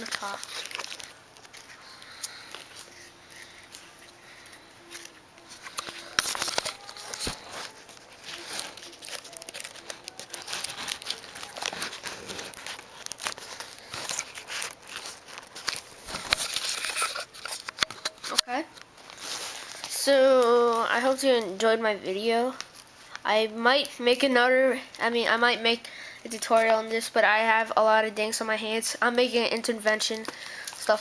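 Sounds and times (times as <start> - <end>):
paper crinkling and rustling: 0.0 - 21.5.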